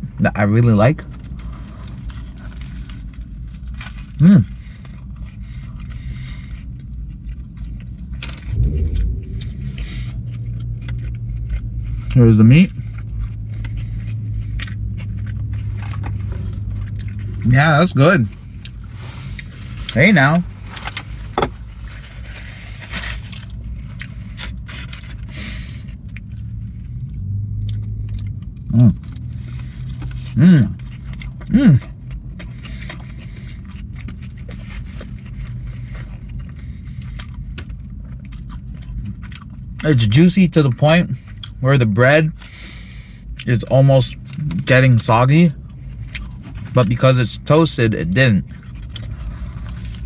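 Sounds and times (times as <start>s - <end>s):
car rumble: 0.9s - 50.0s
person chewing food: 1.6s - 17.6s, 23.2s - 39.8s, 41.1s - 41.6s, 45.5s - 46.8s, 48.4s - 50.0s
person eating: 3.9s - 17.6s, 24.0s - 37.7s, 48.4s - 50.0s
steady low hum: 4.2s - 38.6s.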